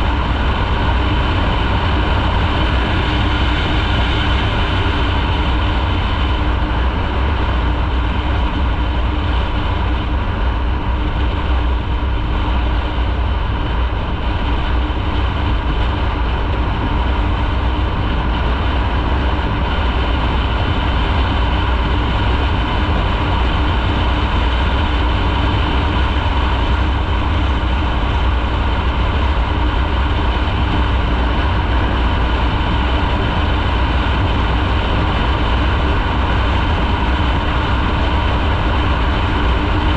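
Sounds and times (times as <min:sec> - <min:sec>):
road noise: 0:00.0 - 0:39.9.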